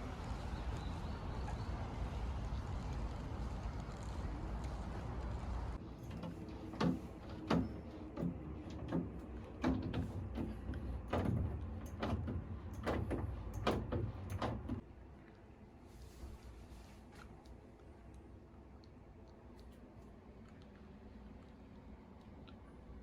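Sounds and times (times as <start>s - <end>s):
knocks and clunks: 5.9s - 14.8s.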